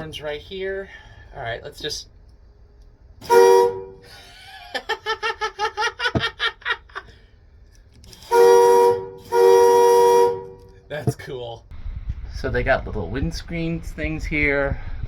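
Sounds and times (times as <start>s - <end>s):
locomotive horn blast: 3.2s - 4.1s, 8.1s - 10.9s.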